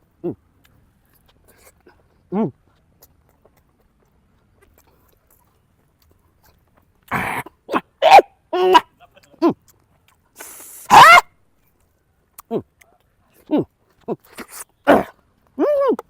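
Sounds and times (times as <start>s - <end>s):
dog barking and yelping: 7.7s - 8.9s, 10.9s - 11.3s.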